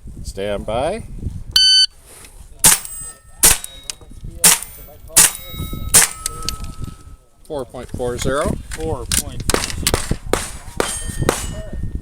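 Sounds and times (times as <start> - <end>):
shot timer beep: 1.6 - 1.9
gunshots: 2.6 - 3.8, 4.4 - 6.2, 9.5 - 11.7
steel target ringing: 10.8 - 12.0.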